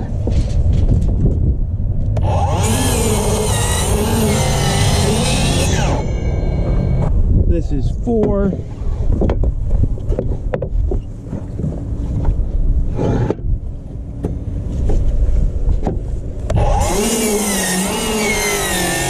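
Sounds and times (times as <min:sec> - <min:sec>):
low rumble: 0:00.0 - 0:16.6
miter saw cutting a board: 0:02.2 - 0:07.1, 0:16.5 - 0:19.0.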